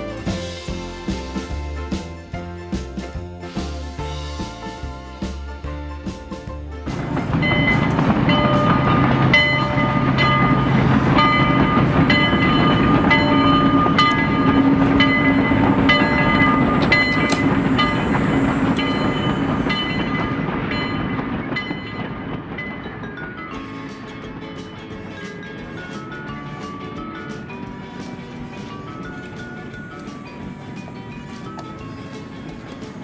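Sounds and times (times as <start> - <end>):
train rumbling on track: 0.0 - 33.0
ringing tones: 6.9 - 23.8.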